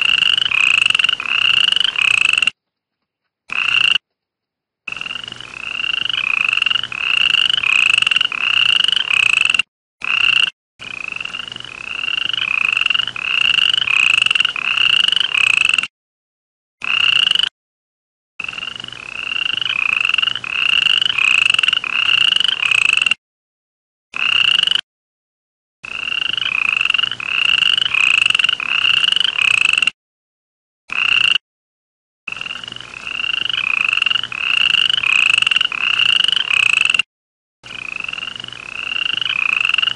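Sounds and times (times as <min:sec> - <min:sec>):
frog chirping: 0:00.0 - 0:02.6, 0:03.5 - 0:04.1, 0:04.9 - 0:15.8, 0:16.8 - 0:17.5, 0:18.4 - 0:23.1, 0:24.2 - 0:24.8, 0:25.9 - 0:29.9, 0:30.9 - 0:31.4, 0:32.3 - 0:37.0, 0:37.7 - 0:39.9.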